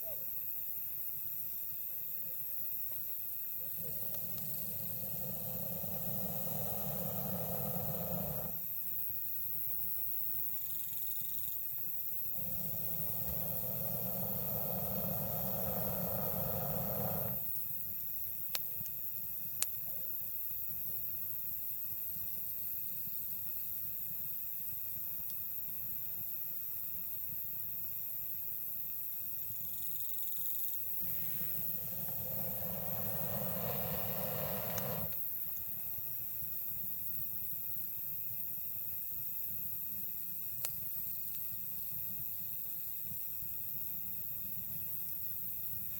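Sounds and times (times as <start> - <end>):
faint insect chirring: 0.0 - 45.9
campfire hissing and rumbling: 0.9 - 10.2, 11.8 - 29.5, 30.8 - 45.9
insect trilling in pulsing burst: 3.6 - 8.9, 12.1 - 17.6, 30.9 - 35.3
campfire crackle: 3.7 - 8.7, 11.8 - 17.8, 31.0 - 35.3
low background rumble: 3.7 - 8.7, 12.3 - 17.6, 31.0 - 35.2.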